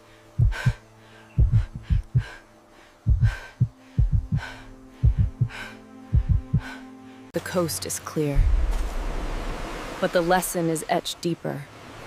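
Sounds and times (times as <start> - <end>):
low steady drone: 0.0 - 10.6
heartbeat thumps: 0.4 - 0.8, 1.4 - 2.4, 3.0 - 6.8.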